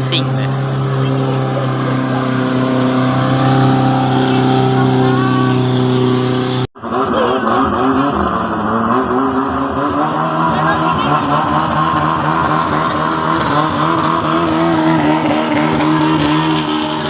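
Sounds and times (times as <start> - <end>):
rising and falling pitched tones: 0.0 - 8.3
boat engine running: 0.0 - 17.0.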